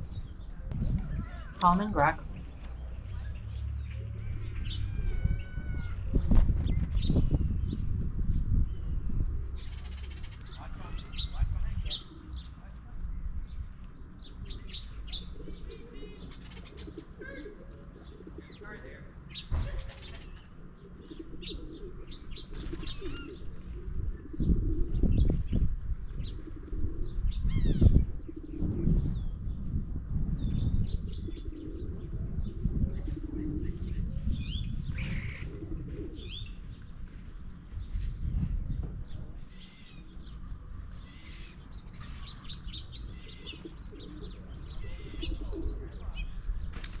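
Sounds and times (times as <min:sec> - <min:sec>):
birds chirping: 0:00.0 - 0:47.0
wings fluttering: 0:22.4 - 0:23.9, 0:46.7 - 0:47.0.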